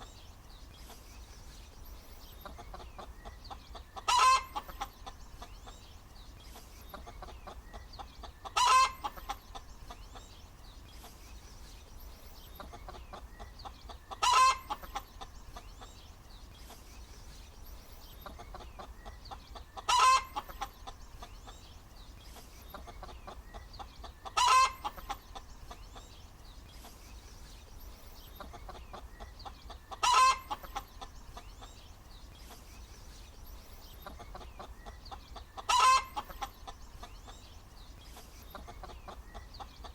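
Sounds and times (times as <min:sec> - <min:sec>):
hen clucking: 0:02.2 - 0:05.9, 0:06.5 - 0:10.4, 0:12.5 - 0:16.1, 0:18.1 - 0:21.7, 0:22.3 - 0:26.2, 0:28.2 - 0:31.8, 0:33.9 - 0:39.9.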